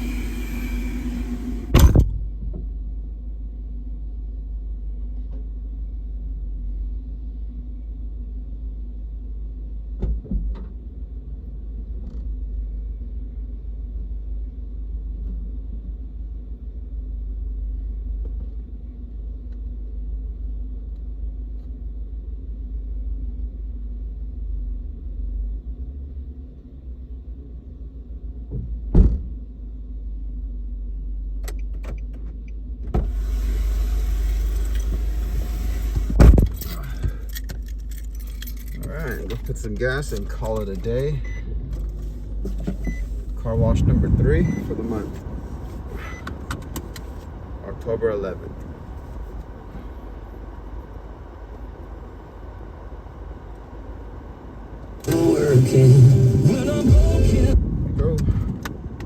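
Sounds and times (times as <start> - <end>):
car engine idling: 0.0 - 2.0, 33.0 - 59.0.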